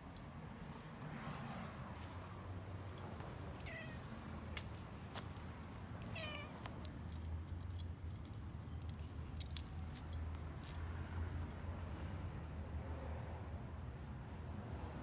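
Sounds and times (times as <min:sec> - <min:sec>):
cat meowing: 0:03.6 - 0:04.0, 0:06.1 - 0:06.6.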